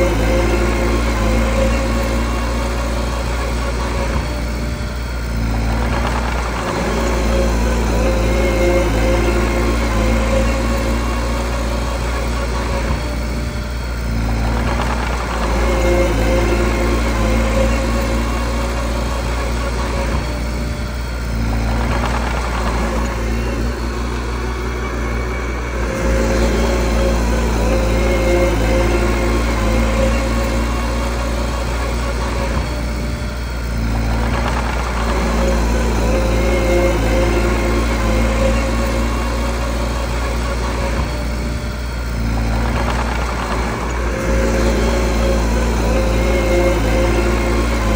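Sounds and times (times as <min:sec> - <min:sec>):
bulldozer diesel engine running: 0:00.0 - 0:47.9.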